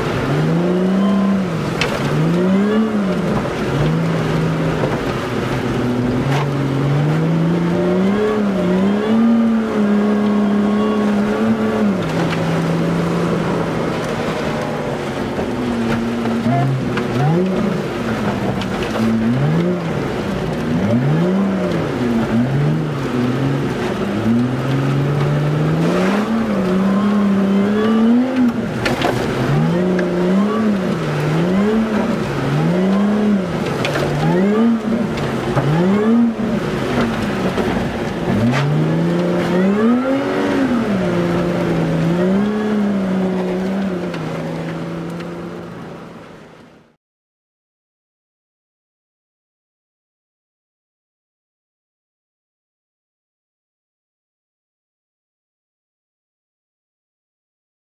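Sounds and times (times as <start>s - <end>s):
car engine revving from cabin: 0.0s - 46.3s.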